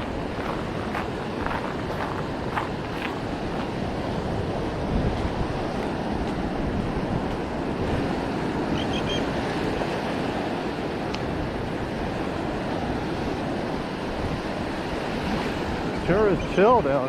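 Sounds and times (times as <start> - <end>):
wind buffeting microphone: 0.0 - 8.7
ocean surf: 0.0 - 17.0.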